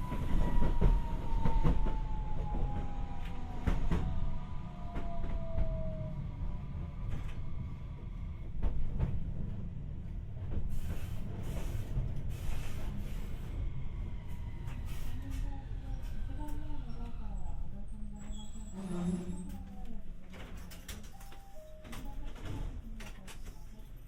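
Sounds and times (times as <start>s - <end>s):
tram motor whine: 0.0s - 9.6s
wheels rumbling on rail: 0.0s - 24.0s.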